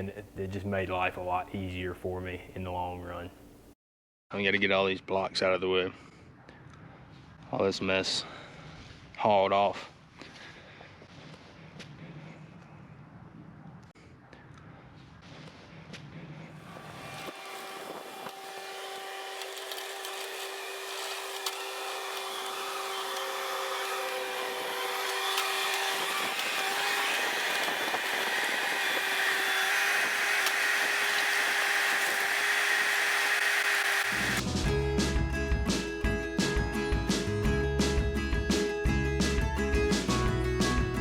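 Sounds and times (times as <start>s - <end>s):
machine engine with high whine: 16.7s - 34.4s.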